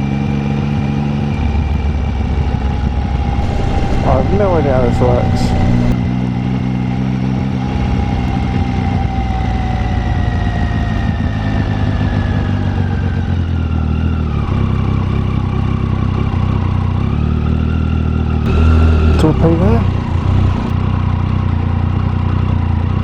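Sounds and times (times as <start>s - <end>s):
motorcycle engine at low revs: 0.0s - 23.0s
falling whine: 2.6s - 6.2s.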